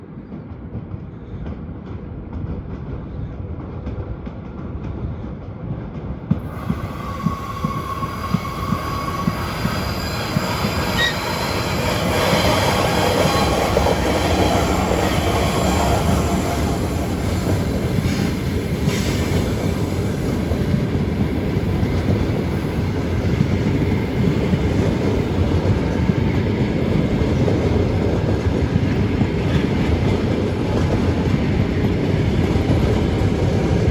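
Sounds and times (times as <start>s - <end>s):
train rumble and wheel clatter: 0.0s - 33.9s
brief high tone: 6.8s - 11.6s.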